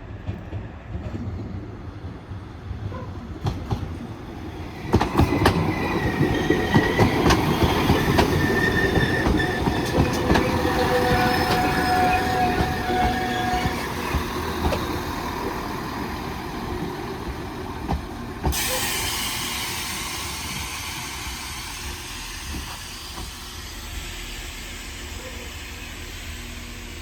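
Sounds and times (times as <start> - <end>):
train engines idling: 3.3 - 27.0
air brake hiss: 18.5 - 26.2.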